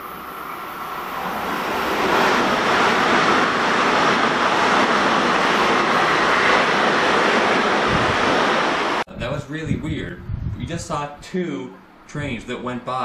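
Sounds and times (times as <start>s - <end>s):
train passing at speed: 0.0s - 9.1s.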